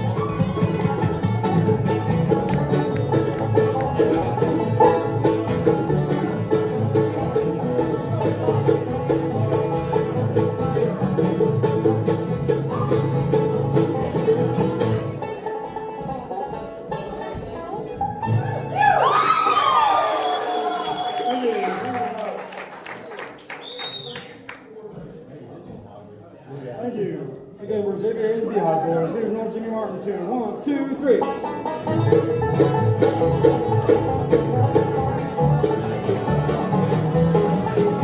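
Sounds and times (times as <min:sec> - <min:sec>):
banjo picking: 0:00.0 - 0:18.8, 0:30.9 - 0:38.0
bluegrass band playing: 0:00.0 - 0:19.2, 0:30.9 - 0:38.0.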